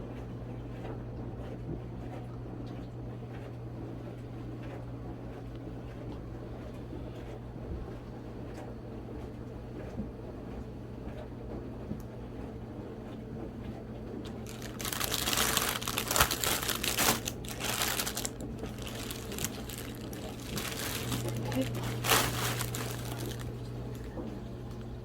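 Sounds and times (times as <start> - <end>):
low steady hum: 13.6 - 25.0
packaging crinkling: 14.2 - 24.8.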